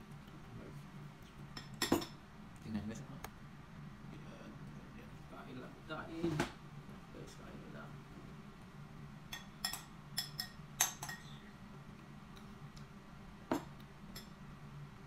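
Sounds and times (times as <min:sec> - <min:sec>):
metal spoon clinking ceramic bowl: 0:09.3 - 0:11.3.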